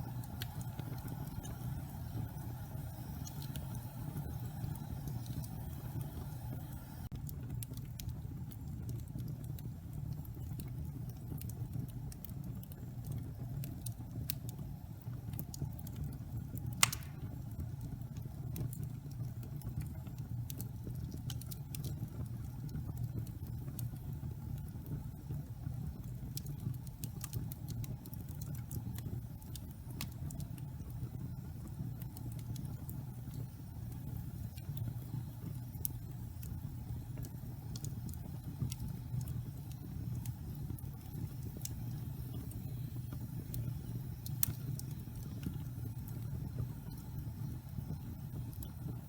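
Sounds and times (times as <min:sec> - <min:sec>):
fire crackling: 0:00.0 - 0:49.0
wood fire rumbling: 0:00.0 - 0:49.0
loud pop from fire: 0:16.8 - 0:17.4.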